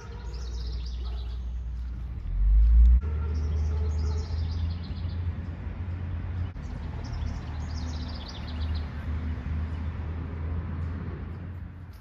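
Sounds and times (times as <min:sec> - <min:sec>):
songbird singing: 0:00.0 - 0:10.2
steady low rumble: 0:01.8 - 0:03.1.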